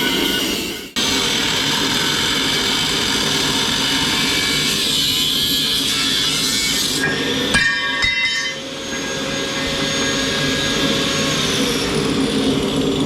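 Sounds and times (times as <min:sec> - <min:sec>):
metallic clanks ringing: 0:07.0 - 0:09.8.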